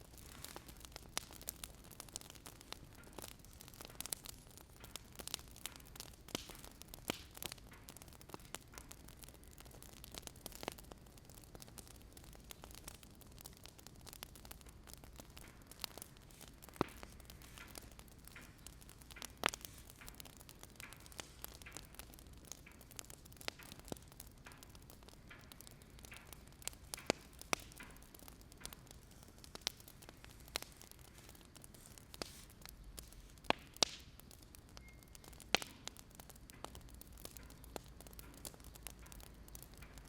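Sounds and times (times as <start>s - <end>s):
steady low hiss and hum: 0.0s - 8.7s
wood fire crackling: 0.0s - 40.0s.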